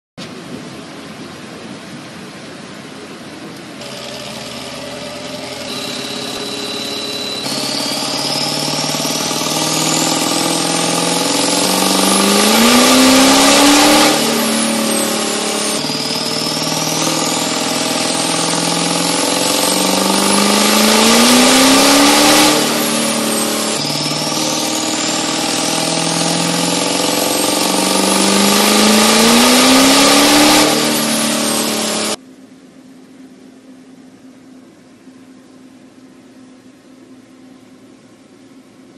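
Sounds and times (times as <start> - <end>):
diesel engine at full throttle: 0.2 - 32.2
high turbo whistle: 3.8 - 32.2.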